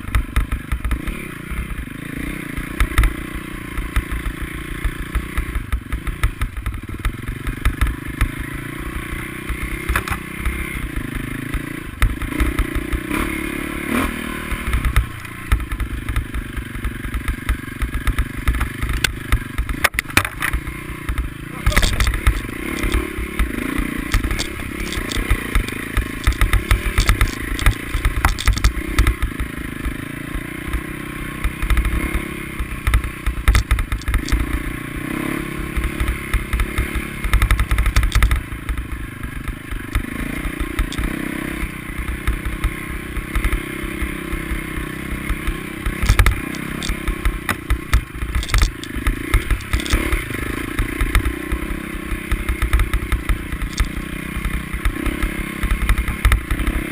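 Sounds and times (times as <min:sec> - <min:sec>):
motorcycle engines revving: 0:00.0 - 0:56.9
low thumps and clatter: 0:14.6 - 0:29.5, 0:32.8 - 0:34.8, 0:35.9 - 0:39.0, 0:45.8 - 0:51.4, 0:52.3 - 0:56.7.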